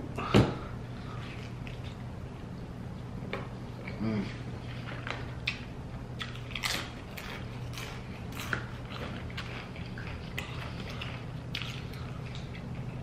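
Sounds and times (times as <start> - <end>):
steady low hum: 0.0 - 13.0
chewing crunchy chips: 4.7 - 13.0.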